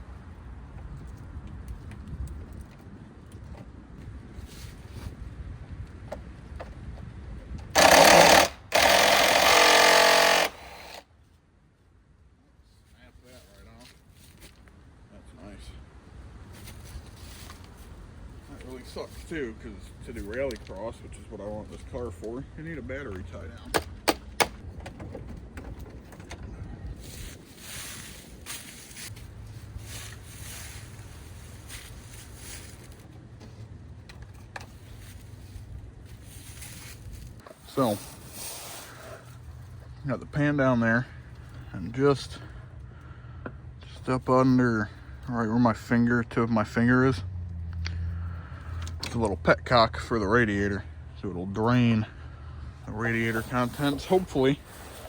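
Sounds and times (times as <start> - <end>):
wind rumble on microphone: 0.0 - 7.8, 24.6 - 32.9
impact wrench hammering rattle: 7.8 - 11.0
rustling: 27.0 - 33.8, 34.7 - 39.8.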